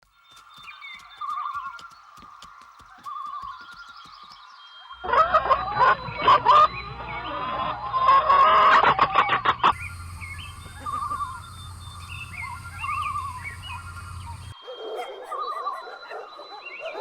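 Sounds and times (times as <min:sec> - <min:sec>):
chickens clucking and calling: 0:05.0 - 0:17.0
short chirps and trilling calls: 0:09.1 - 0:16.9
steady hiss: 0:09.6 - 0:14.6.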